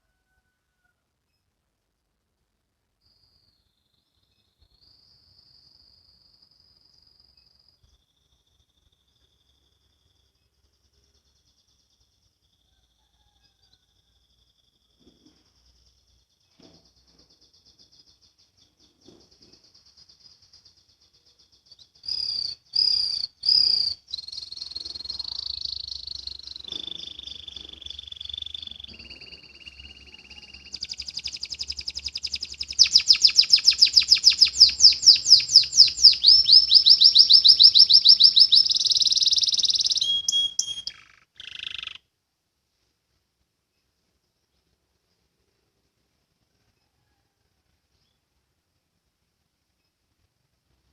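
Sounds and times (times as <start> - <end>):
canary singing trills: 16.9 - 42.0.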